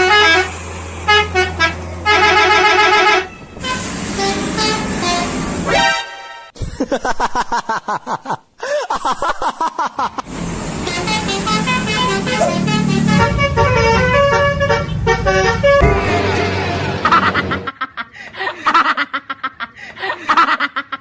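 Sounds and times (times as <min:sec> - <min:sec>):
multi-tone bus horn tune: 0:00.0 - 0:06.6, 0:10.3 - 0:17.7
low engine drone: 0:10.3 - 0:17.7.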